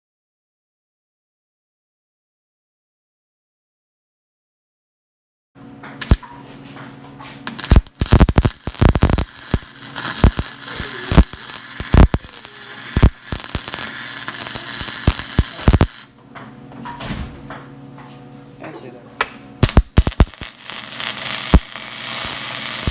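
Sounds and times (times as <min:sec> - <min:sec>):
low electrical hum: 0:05.6 - 0:22.9
welding arc crackling and popping: 0:06.0 - 0:06.2, 0:07.4 - 0:16.1, 0:19.6 - 0:22.9.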